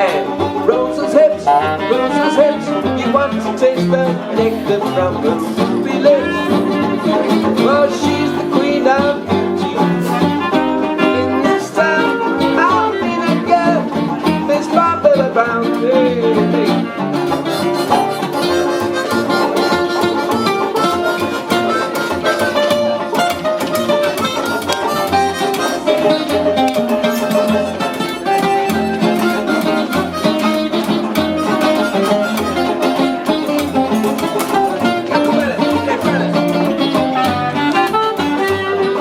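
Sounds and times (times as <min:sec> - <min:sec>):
strummed guitar: 0:00.0 - 0:39.0
steady beat: 0:11.9 - 0:39.0.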